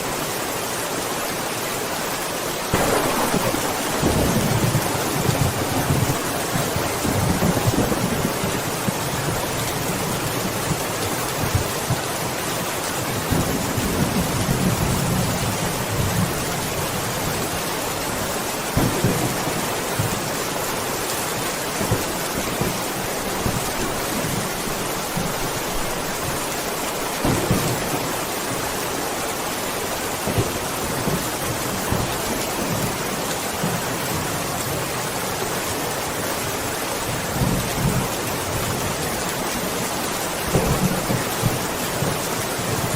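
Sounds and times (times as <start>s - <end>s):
steady rain: 0.0s - 42.9s
thunder rumbling: 2.7s - 10.0s, 18.8s - 20.4s, 27.2s - 28.5s.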